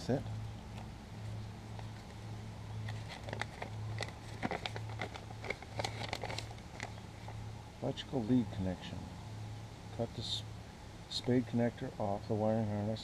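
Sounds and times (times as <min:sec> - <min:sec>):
steady low hum: 0:00.0 - 0:13.0
paper crinkling and rustling: 0:02.8 - 0:07.4.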